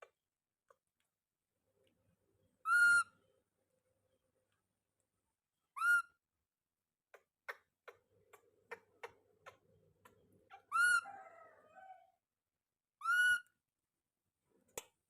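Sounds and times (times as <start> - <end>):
baby monkey call: 2.6 - 3.1, 5.8 - 6.2, 8.7 - 12.0, 13.0 - 13.6.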